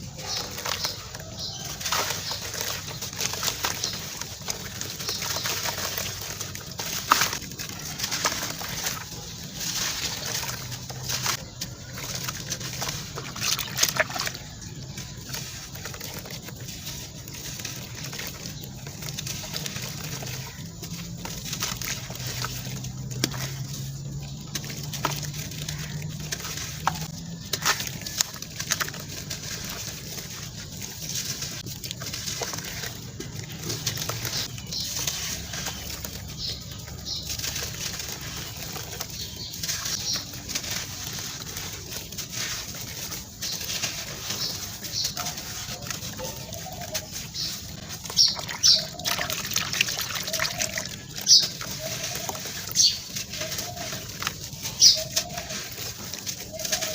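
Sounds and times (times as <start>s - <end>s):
sand-cement lumps crunching: 0.0s - 56.9s.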